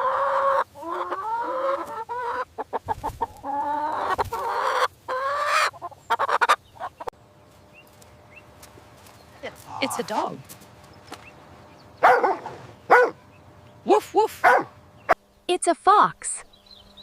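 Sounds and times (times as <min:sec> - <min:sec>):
chicken calling: 0:00.0 - 0:07.1, 0:09.3 - 0:15.2.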